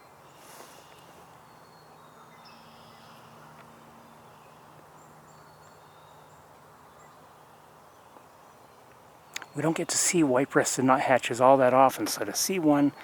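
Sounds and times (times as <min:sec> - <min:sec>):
distant songbirds calling: 0:00.0 - 0:13.0.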